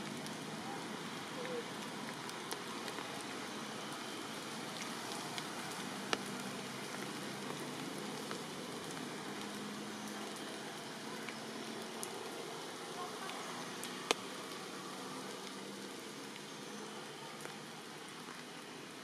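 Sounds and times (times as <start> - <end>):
steady rain hiss: 0.0 - 19.0
raindrop taps: 4.8 - 10.5, 13.2 - 14.6.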